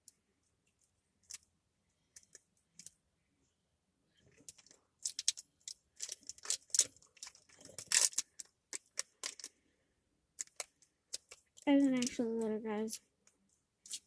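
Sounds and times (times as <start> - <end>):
plastic wrapper crinkling: 4.3 - 9.6, 10.4 - 13.0.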